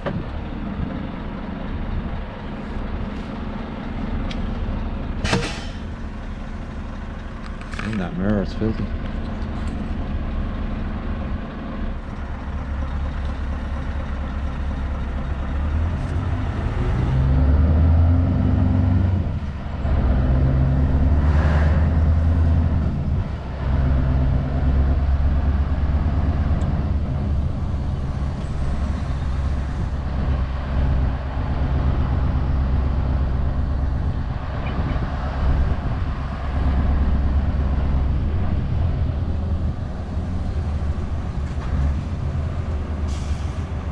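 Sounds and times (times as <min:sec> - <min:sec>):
diesel truck engine under load: 0:00.0 - 0:43.9
short hiss: 0:05.2 - 0:05.9.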